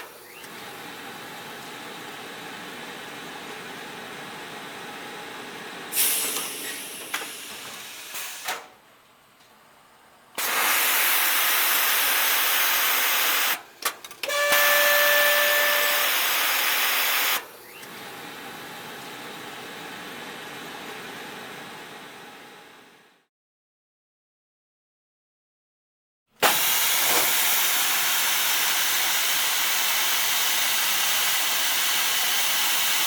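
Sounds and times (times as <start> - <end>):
steam hissing: 5.9 - 8.5, 10.4 - 13.6, 26.4 - 33.0
steam whistling tone: 14.3 - 17.4.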